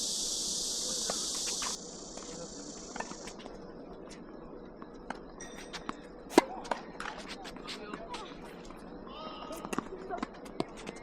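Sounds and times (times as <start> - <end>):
cicadas buzzing: 0.0 - 3.7.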